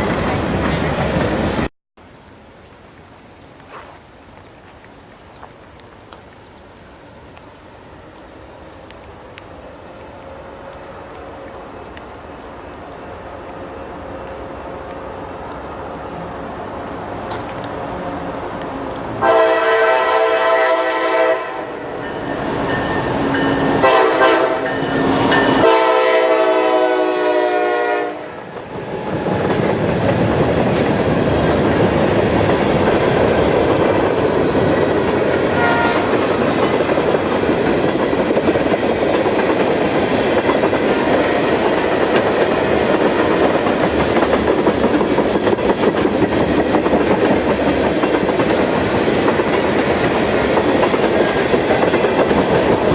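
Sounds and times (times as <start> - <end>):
train wheels clickety-clack: 0.0 - 1.7, 28.5 - 52.9
locomotive chime horn blasts: 19.2 - 28.3, 35.5 - 36.1.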